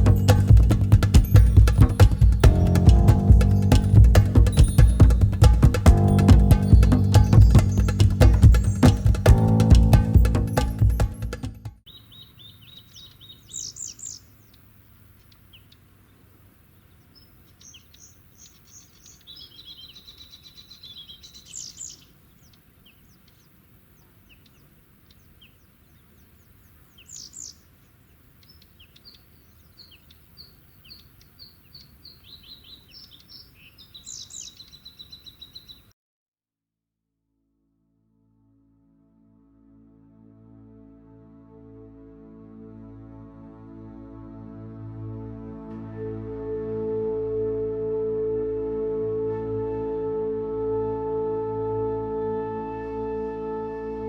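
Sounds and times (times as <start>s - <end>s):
birds chirping and trilling: 0.0s - 11.0s, 11.9s - 14.6s, 16.8s - 23.6s, 28.4s - 35.9s
faint background hiss: 0.0s - 35.9s.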